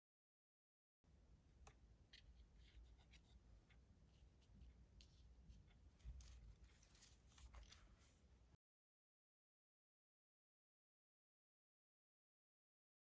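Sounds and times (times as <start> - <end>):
low room hum: 1.1 - 8.6
soft rustles: 2.1 - 8.6.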